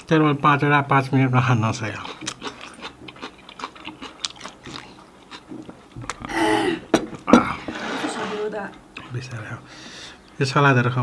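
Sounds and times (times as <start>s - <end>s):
chewing with wet mouth clicks: 1.8s - 6.3s
breathy noise: 6.2s - 7.8s.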